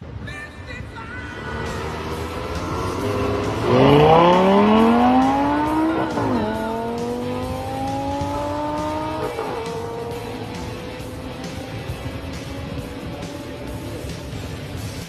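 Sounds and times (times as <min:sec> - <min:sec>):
rock music: 0:00.8 - 0:15.0
sports car engine accelerating: 0:01.3 - 0:15.0.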